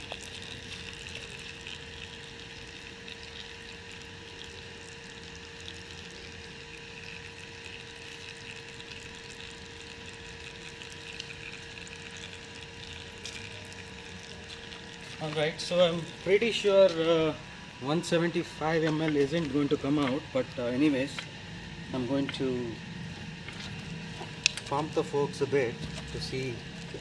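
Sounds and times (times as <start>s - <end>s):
oil trickling into container: 0.0s - 27.0s
steady low hum: 0.0s - 27.0s.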